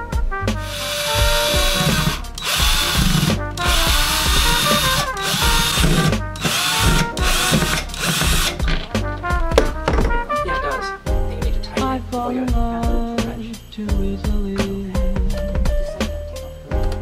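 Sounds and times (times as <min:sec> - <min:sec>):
background music: 0:00.0 - 0:17.0
cordless drill running: 0:00.6 - 0:08.6.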